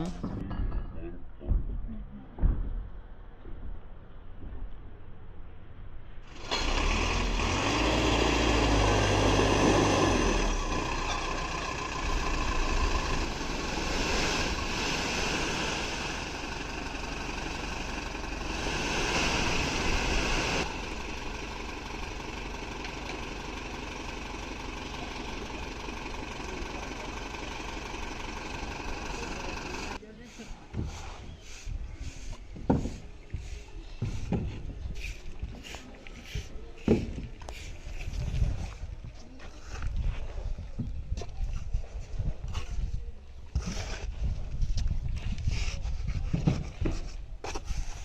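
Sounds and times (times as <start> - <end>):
heavy diesel engine running: 6.3 - 30.4.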